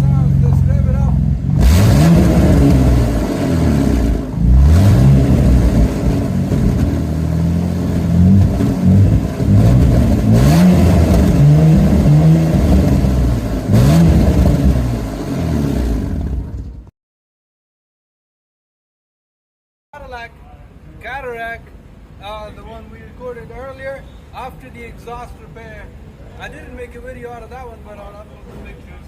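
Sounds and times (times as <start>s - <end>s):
car engine revving: 0.0s - 16.8s.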